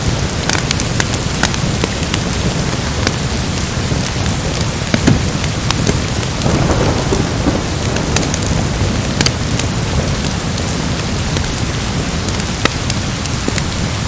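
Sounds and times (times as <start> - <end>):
heavy rain: 0.0 - 14.0
wood fire crackling: 0.0 - 14.0
distant thunder: 4.9 - 11.6.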